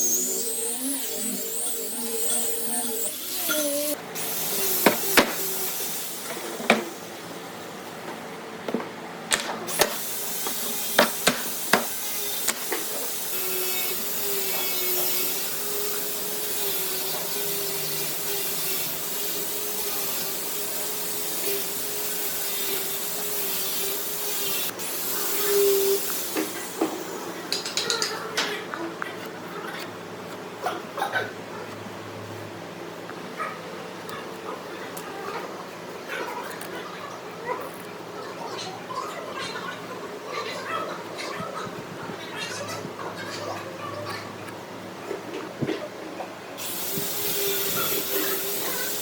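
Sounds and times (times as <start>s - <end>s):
power tool running: 0.0s - 7.8s, 9.3s - 28.2s, 46.6s - 49.0s.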